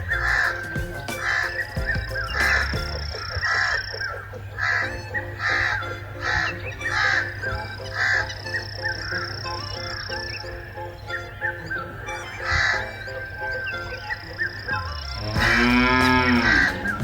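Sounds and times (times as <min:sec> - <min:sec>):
light background music: 0:00.0 - 0:17.0.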